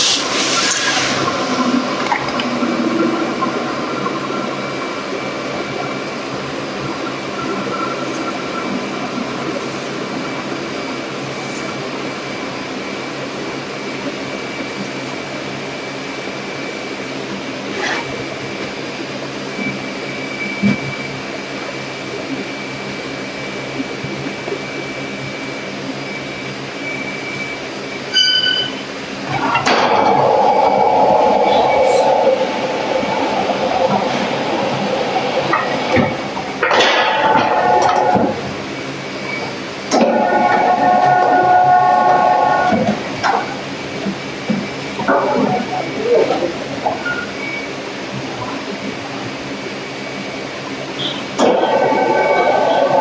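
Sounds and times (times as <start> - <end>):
brief high beep: 28.1 - 28.8
machine running: 29.0 - 46.2, 51.0 - 53.0.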